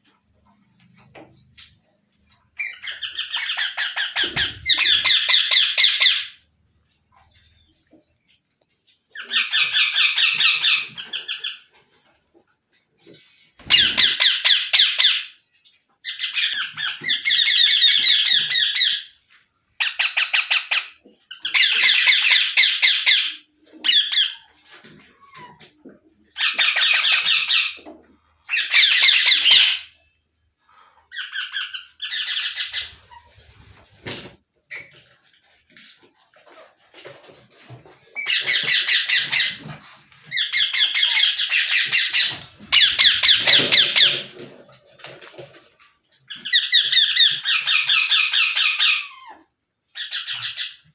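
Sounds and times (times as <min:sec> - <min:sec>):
parakeet screeching: 0:02.6 - 0:06.4, 0:13.6 - 0:15.4, 0:28.5 - 0:29.9, 0:31.1 - 0:34.0, 0:38.2 - 0:39.7, 0:40.3 - 0:44.2.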